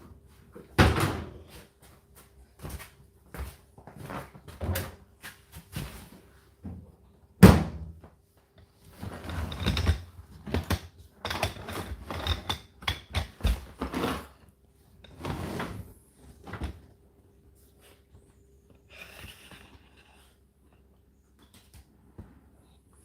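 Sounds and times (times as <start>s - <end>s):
dryer door knocks and clunks: 7.4s - 8.0s.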